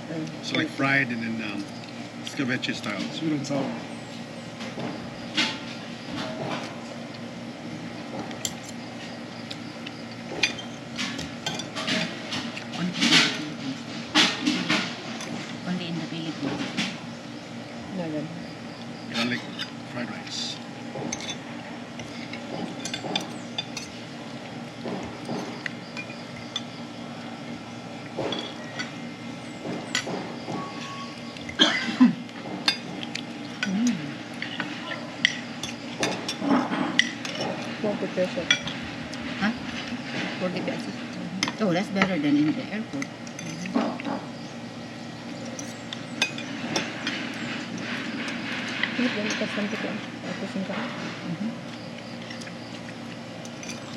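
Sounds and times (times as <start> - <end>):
cutlery and dishes clinking: 10.4 - 13.6, 22.0 - 24.0, 34.4 - 37.8, 43.2 - 44.2, 53.5 - 53.9.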